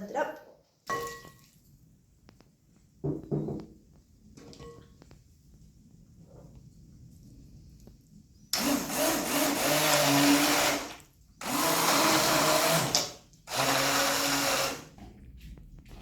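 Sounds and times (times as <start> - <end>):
electric blender running: 8.6 - 14.9.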